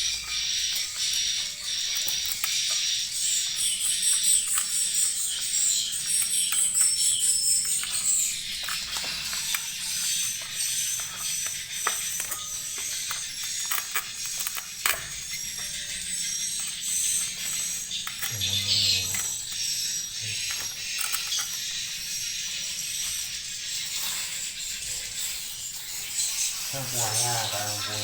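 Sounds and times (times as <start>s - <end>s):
swiftlets twittering: 15.4s - 20.8s.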